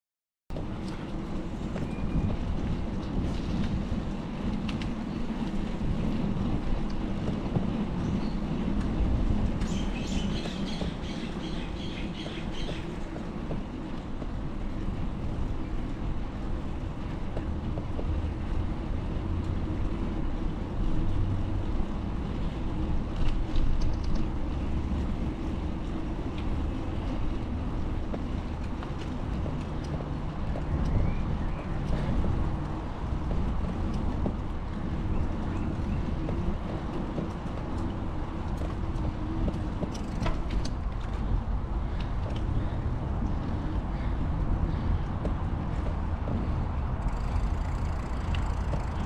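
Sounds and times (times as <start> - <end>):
street traffic rumble: 0.5 - 49.0
wind: 0.5 - 49.0.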